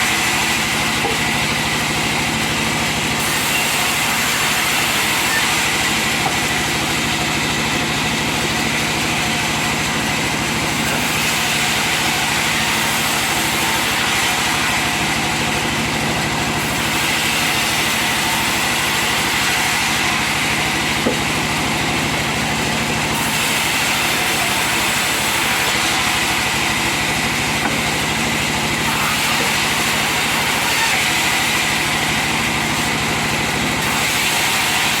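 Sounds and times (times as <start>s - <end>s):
sawmill saw cutting timber: 0.0s - 35.0s.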